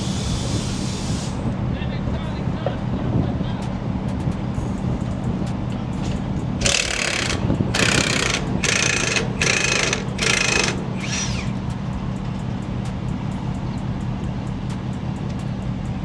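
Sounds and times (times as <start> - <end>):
impact wrench hammering: 6.6 - 11.6.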